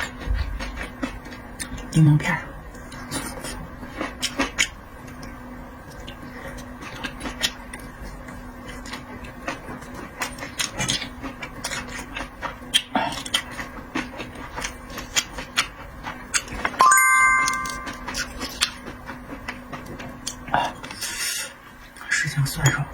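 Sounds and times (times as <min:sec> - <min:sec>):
person chewing food: 0:02.8 - 0:16.8
bright ringing ding: 0:16.8 - 0:18.2.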